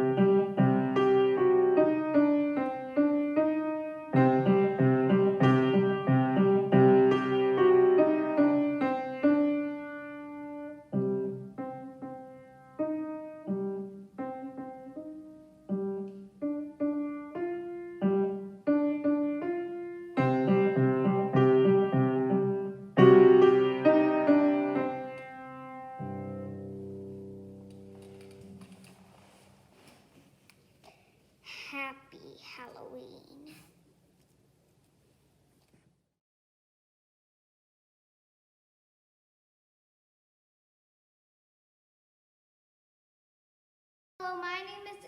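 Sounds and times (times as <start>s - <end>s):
solo piano piece: 0.0s - 29.4s.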